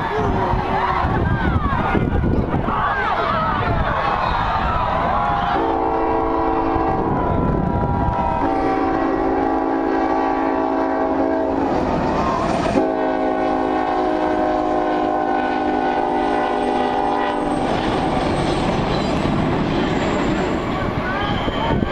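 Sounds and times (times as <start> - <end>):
diesel locomotives rumbling past: 0.0 - 21.9
locomotive air horn blasts: 5.5 - 7.2, 8.2 - 11.9, 12.5 - 17.8.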